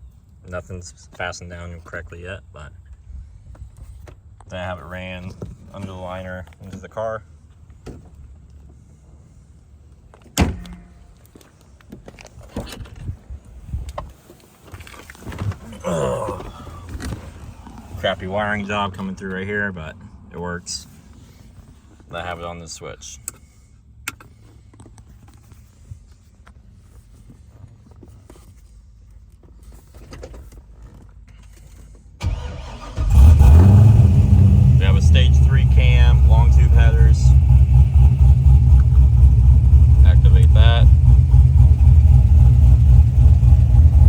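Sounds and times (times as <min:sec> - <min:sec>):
car engine starting up: 0:32.2 - 0:44.0
low steady rumble: 0:33.0 - 0:44.0.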